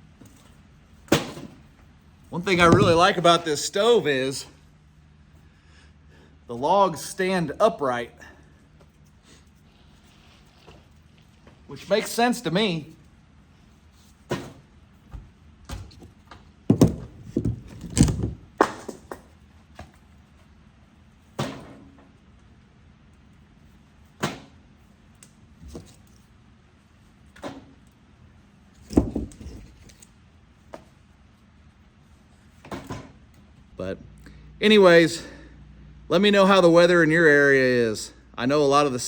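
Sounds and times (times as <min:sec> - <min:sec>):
logs knocking in stove: 0:02.5 - 0:03.2.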